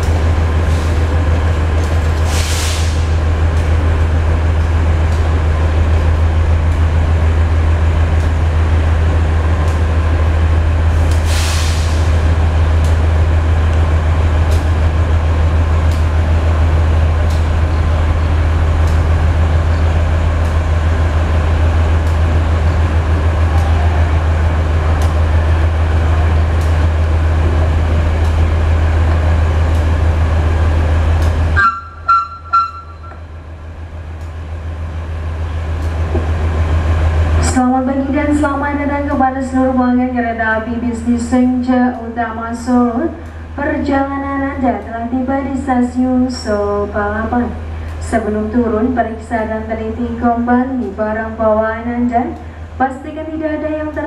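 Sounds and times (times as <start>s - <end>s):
train hum and rumble: 0.0s - 54.0s
air brake hisses: 2.2s - 3.1s, 11.2s - 12.1s.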